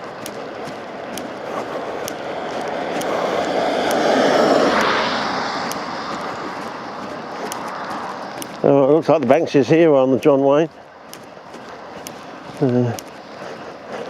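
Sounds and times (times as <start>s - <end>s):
light footsteps: 0.0s - 14.0s
vehicle passing on road: 0.0s - 14.0s.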